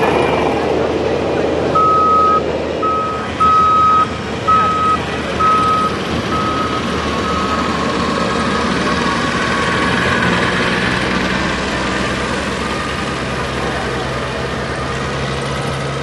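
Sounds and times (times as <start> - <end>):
constant rumble: 0.0 - 16.0
vehicle backup alarm beeping: 1.8 - 7.8.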